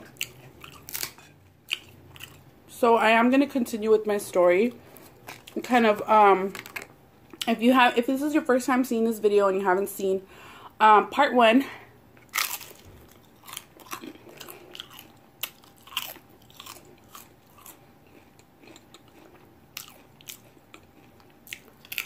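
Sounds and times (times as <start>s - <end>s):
person biting crisp chips: 0.0s - 2.4s, 12.2s - 22.0s.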